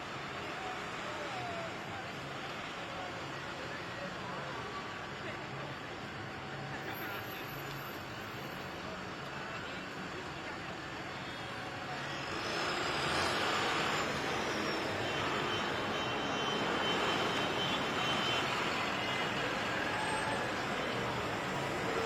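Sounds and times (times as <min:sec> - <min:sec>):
vehicle engines running: 0:00.1 - 0:22.0.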